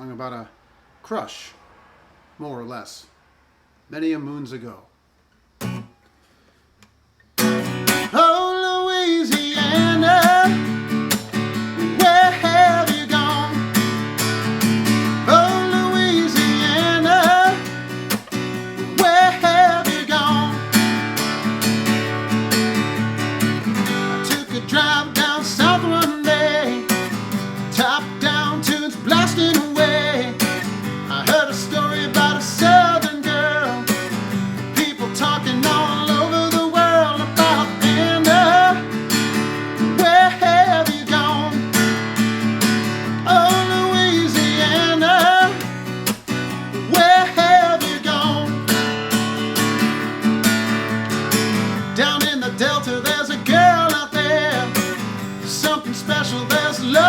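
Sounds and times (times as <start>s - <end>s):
acoustic guitar strumming: 5.6s - 6.5s, 7.2s - 57.0s
man singing: 8.1s - 10.8s, 11.6s - 13.8s, 15.1s - 17.8s, 18.6s - 20.9s, 23.8s - 34.1s, 34.7s - 39.0s, 39.8s - 42.0s, 43.1s - 45.7s, 46.7s - 49.0s, 51.6s - 57.0s.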